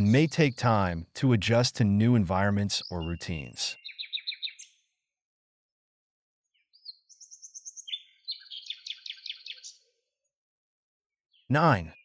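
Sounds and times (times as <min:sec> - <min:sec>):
small bird chirping trills: 0:00.0 - 0:00.8, 0:02.4 - 0:05.0, 0:06.4 - 0:10.4, 0:11.2 - 0:12.0.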